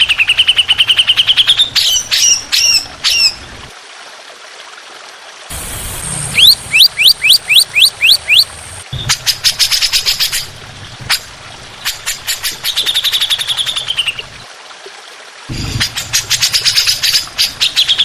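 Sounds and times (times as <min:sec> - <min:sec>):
buzzy bird trill: 0:05.5 - 0:10.6
rising bird whistles: 0:05.8 - 0:09.2.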